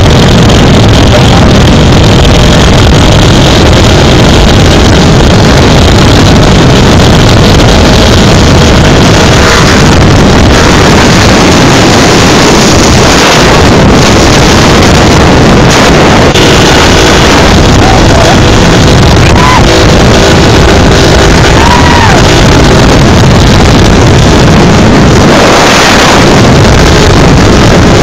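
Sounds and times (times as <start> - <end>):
motorcycle engine running loud: 0.0 - 28.0.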